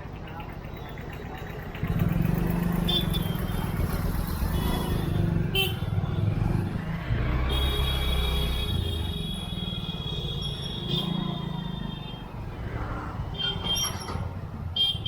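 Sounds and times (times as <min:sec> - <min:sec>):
street traffic: 0:00.0 - 0:15.0
motorcycle engine running: 0:01.3 - 0:07.8.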